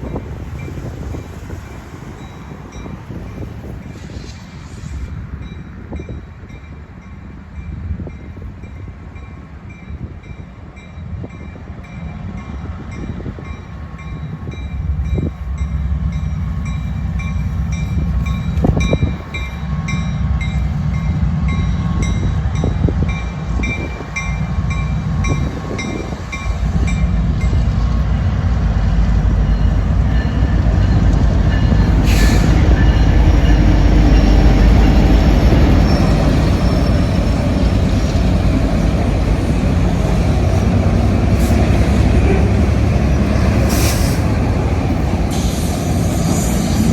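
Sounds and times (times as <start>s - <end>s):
train rumbling past: 0.0s - 46.9s.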